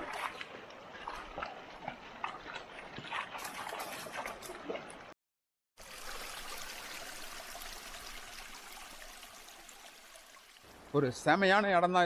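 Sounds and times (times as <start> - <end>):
stream running over stones: 5.8 - 11.1.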